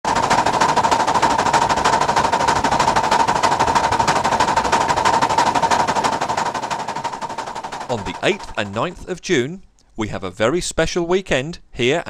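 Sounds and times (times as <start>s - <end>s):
steam locomotive exhaust beats: 0.0s - 9.3s.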